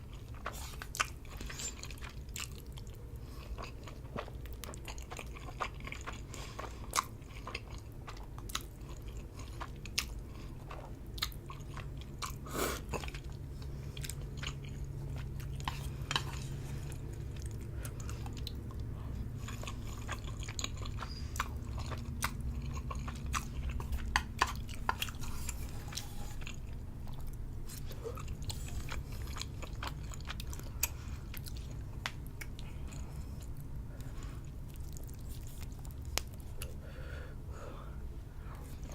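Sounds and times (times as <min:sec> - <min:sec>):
wet chewing of noodles: 0:00.0 - 0:37.2
steady low hum: 0:00.0 - 0:38.9.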